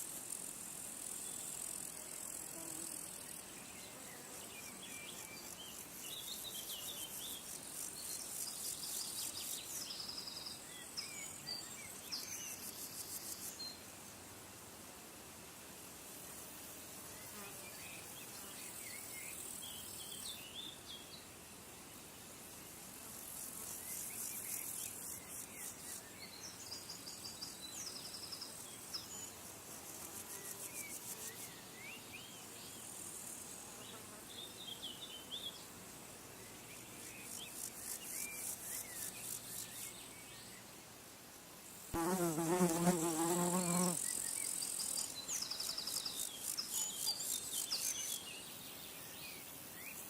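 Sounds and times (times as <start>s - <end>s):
insects trilling: 41.8s - 48.4s.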